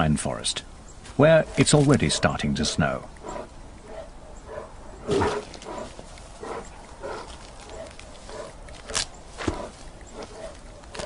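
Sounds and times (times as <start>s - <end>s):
bear huffing: 1.3s - 11.0s.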